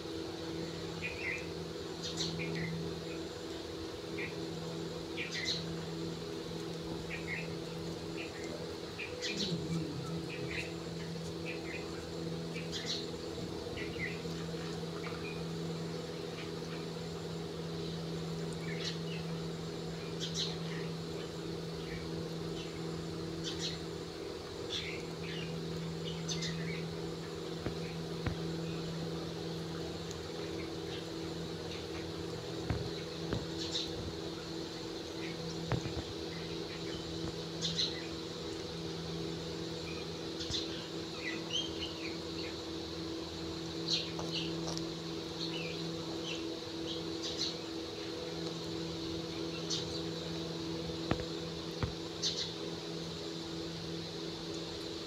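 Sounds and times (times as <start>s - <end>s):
steady low hum: 0.0s - 55.0s
bird chirps and tweets: 0.6s - 2.8s, 5.2s - 5.7s, 11.4s - 13.2s, 20.0s - 22.8s, 23.4s - 23.8s, 24.7s - 26.9s, 32.7s - 34.0s, 34.9s - 38.2s, 39.7s - 42.6s, 43.7s - 44.8s, 45.4s - 48.1s, 49.4s - 50.4s, 52.2s - 52.6s.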